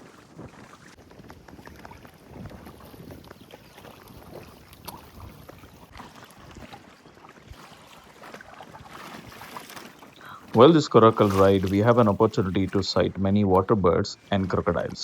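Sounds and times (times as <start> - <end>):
wind on microphone: 0.0 - 9.6
water splashing and lapping: 0.0 - 15.0.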